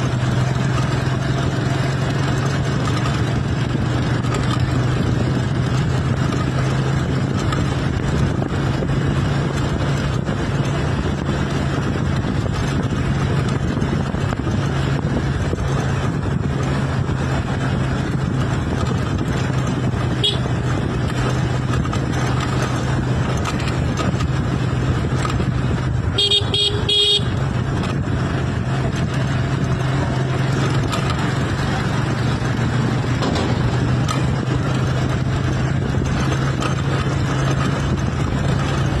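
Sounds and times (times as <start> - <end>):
road noise: 0.0 - 39.0
vehicle engine running: 0.0 - 39.0
vehicle horn: 20.1 - 20.6, 26.1 - 27.5.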